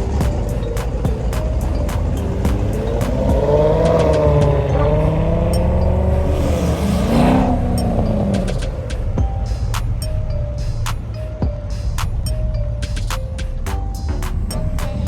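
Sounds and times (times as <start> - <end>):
car driving past: 1.8 - 9.2.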